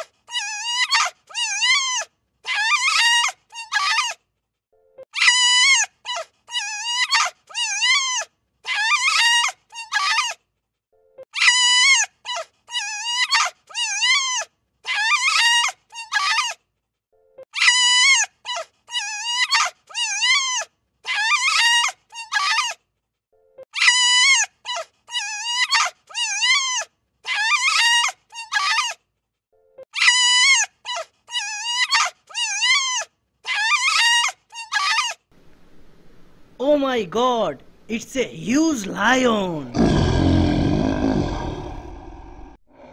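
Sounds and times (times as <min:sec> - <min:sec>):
wolf whining and yipping: 0:00.0 - 0:04.2, 0:05.1 - 0:10.4, 0:11.3 - 0:16.6, 0:17.5 - 0:22.8, 0:23.7 - 0:29.0, 0:29.9 - 0:35.3.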